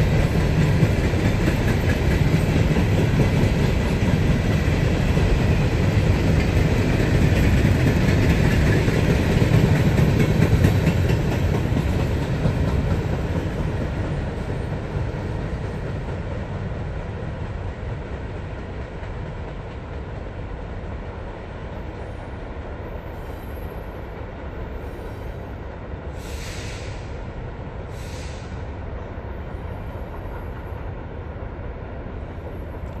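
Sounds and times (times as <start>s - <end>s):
rail cars rumbling past: 0.0s - 33.0s
short high hissing: 26.2s - 27.1s, 27.9s - 28.6s.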